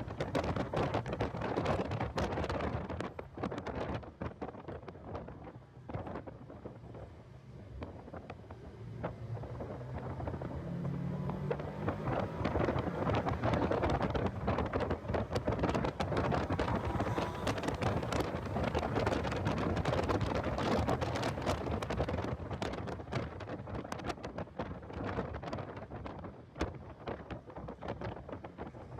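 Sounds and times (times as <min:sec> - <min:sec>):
wind buffeting microphone: 0:00.0 - 0:28.9
car engine accelerating: 0:07.8 - 0:23.4.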